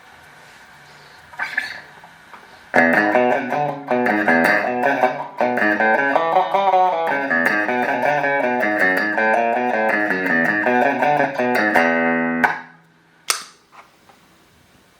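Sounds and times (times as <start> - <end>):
clean electric guitar: 2.7 - 12.9.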